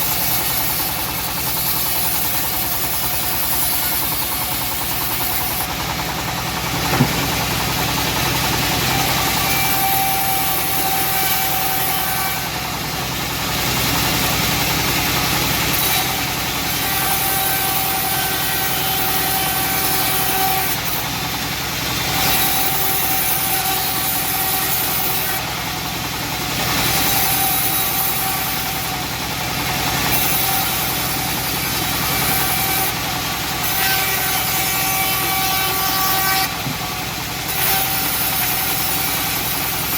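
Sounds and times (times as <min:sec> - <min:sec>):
engine-driven bandsaw mill running: 0:00.0 - 0:39.9
sharp knock: 0:06.9 - 0:07.5.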